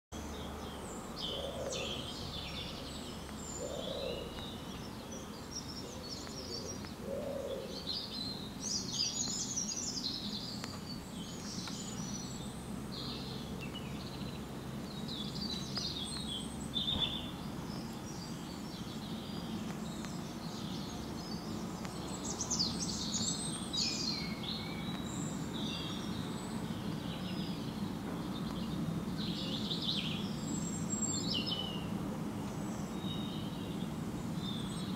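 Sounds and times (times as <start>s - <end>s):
songbirds chirping and trilling: 0.2s - 34.9s.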